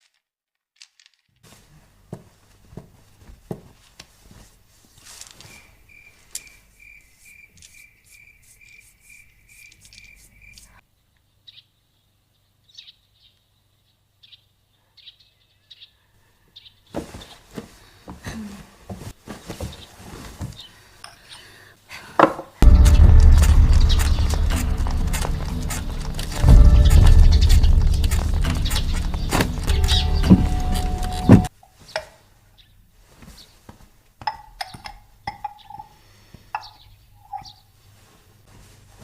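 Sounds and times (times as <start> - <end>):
cricket chirping: 5.5 - 10.8
low hum: 22.6 - 31.5
rustling and knocks: 22.6 - 32.1.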